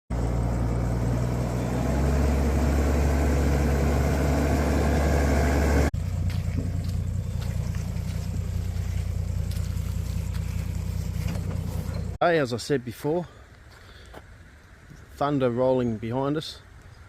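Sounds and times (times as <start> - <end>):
vehicle engine running: 0.1 - 12.2.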